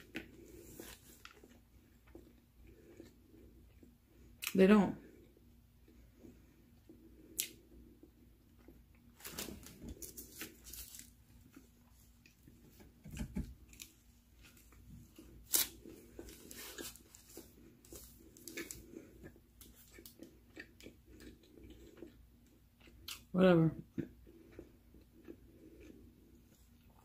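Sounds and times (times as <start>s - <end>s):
person chewing food: 0.0s - 4.5s, 5.1s - 12.7s, 13.6s - 27.0s
paper wrapper rustling: 9.2s - 11.2s.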